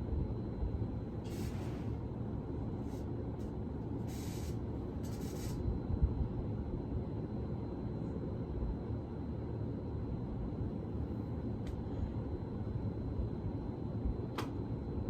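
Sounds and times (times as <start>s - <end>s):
ceiling fan running: 0.0s - 15.0s
short bursts of hiss: 1.2s - 2.0s, 4.0s - 5.6s.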